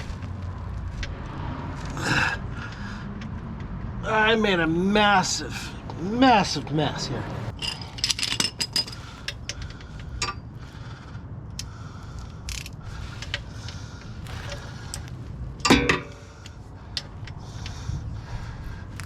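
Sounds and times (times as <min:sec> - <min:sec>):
steady low rumble: 0:00.0 - 0:19.0
metal clatter: 0:07.4 - 0:09.6, 0:14.2 - 0:17.1
tools clicking and clinking: 0:07.5 - 0:10.4.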